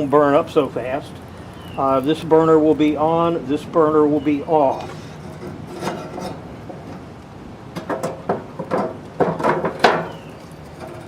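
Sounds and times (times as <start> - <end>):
knocks and clatters on a grill: 4.8 - 7.1, 7.7 - 11.0.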